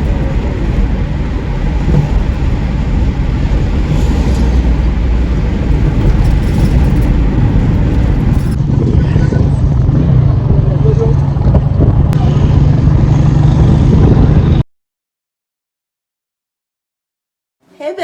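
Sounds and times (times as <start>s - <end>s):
vehicle engine and road rumble: 0.0s - 14.6s.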